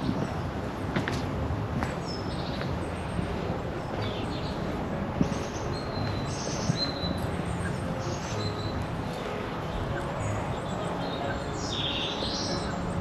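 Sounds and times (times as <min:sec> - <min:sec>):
small birds chirping: 0:01.9 - 0:13.0.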